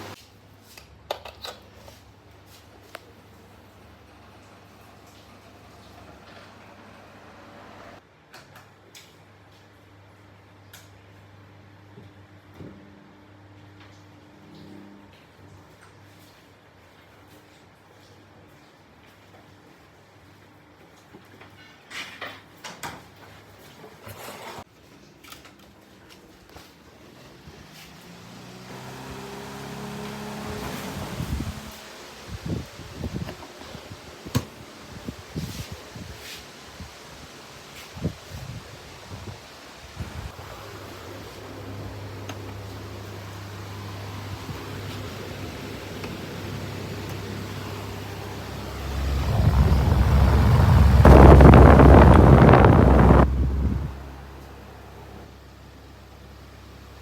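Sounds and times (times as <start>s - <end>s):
electric fan motor hum: 3.4s - 8.0s, 27.4s - 36.1s, 39.9s - 57.0s
rush of air: 48.1s - 54.1s.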